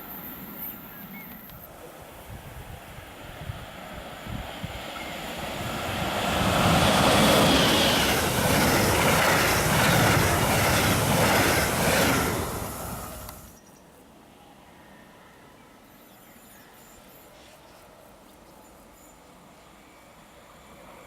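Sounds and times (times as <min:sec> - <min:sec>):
train passing: 0:00.0 - 0:13.6, 0:18.8 - 0:21.0.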